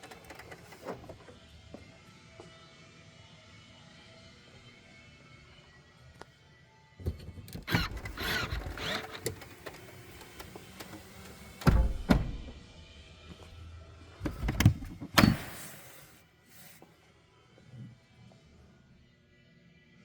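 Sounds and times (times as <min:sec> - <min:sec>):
power window motor: 0:07.6 - 0:12.8
car body thuds: 0:11.6 - 0:12.7.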